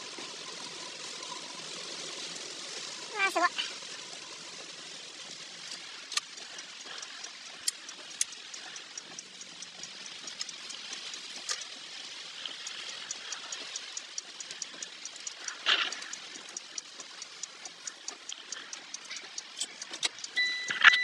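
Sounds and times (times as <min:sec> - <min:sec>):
rushing water: 0:00.0 - 0:20.2
fast even ticking: 0:00.0 - 0:21.0
sharp clicks: 0:05.6 - 0:21.0.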